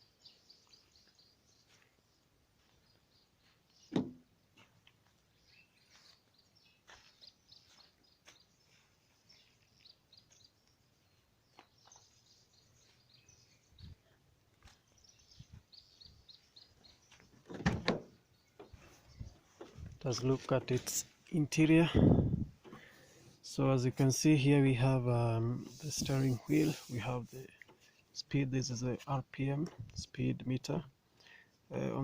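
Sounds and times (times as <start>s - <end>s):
small birds chirping: 0.0s - 32.0s
thump: 3.9s - 4.2s.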